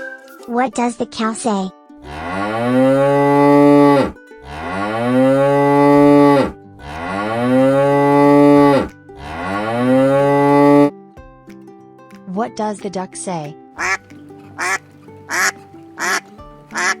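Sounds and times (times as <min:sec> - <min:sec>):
cow mooing: 0:02.0 - 0:10.9.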